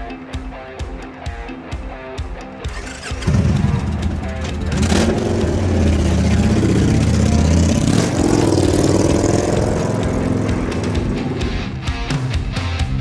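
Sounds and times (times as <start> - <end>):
motorcycle engine revving: 2.7 - 11.9.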